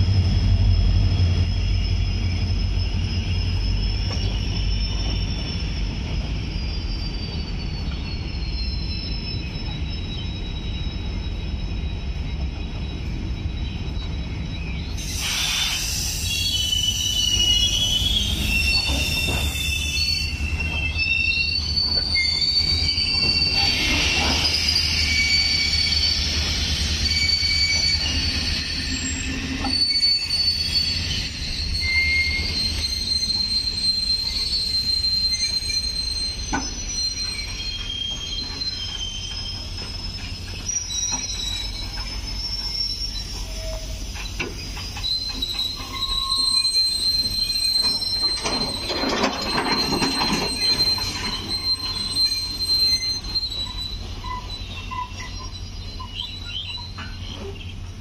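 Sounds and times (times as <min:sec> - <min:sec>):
freight train rumbling: 0:00.0 - 0:58.0
train wheels squealing: 0:00.0 - 0:58.0
wagons clattering and knocking: 0:48.3 - 0:51.8.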